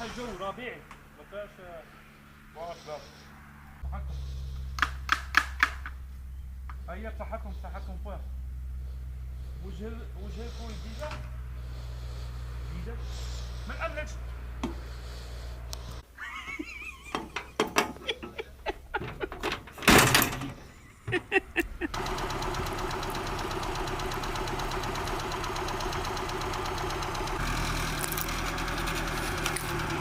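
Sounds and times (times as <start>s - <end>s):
engine starting and idling: 18.9s - 21.0s, 21.9s - 30.0s.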